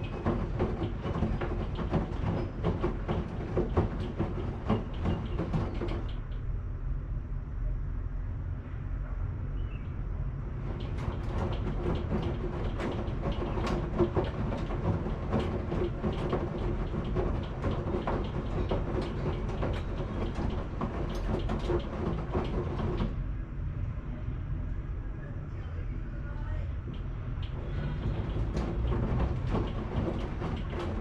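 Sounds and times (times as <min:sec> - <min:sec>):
clicks and knocks: 0:00.0 - 0:06.4, 0:10.6 - 0:23.2, 0:26.9 - 0:31.0
washing machine drum rumbling: 0:00.0 - 0:06.5, 0:10.5 - 0:23.3, 0:26.8 - 0:31.0.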